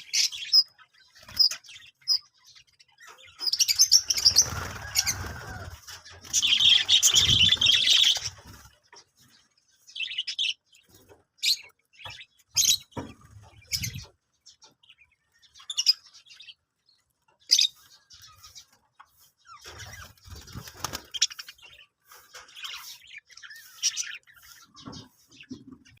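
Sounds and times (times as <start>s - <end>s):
budgerigars chirping: 0.0s - 9.1s, 17.4s - 25.7s
wing flutters: 4.0s - 8.9s, 19.6s - 21.6s.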